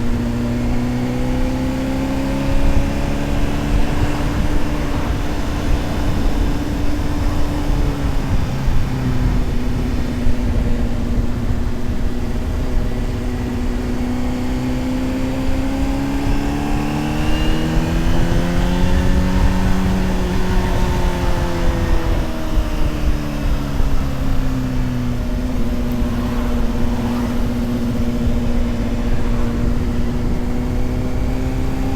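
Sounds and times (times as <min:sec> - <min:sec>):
motorcycle engine running: 0:00.0 - 0:31.9
wind rushing over microphone: 0:00.0 - 0:31.9.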